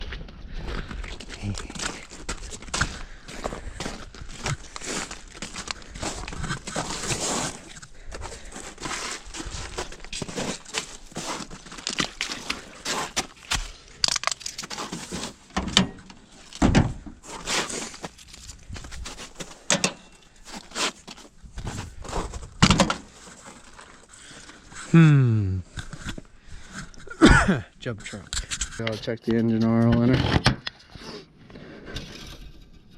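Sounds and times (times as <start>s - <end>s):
objects being handled: 4.2s - 24.9s.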